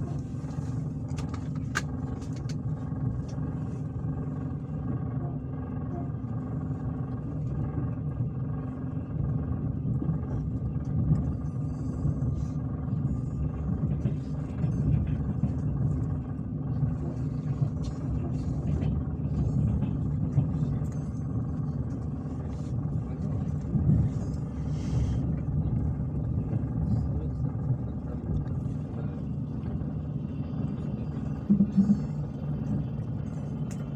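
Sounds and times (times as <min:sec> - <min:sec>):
train rumbling: 0:00.0 - 0:33.9.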